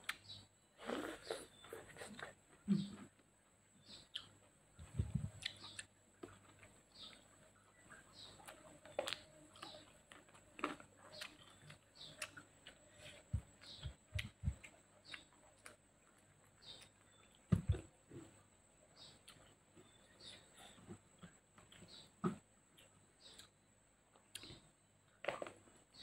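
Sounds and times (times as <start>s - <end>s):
chewing and lip smacking: 4.1s - 17.3s.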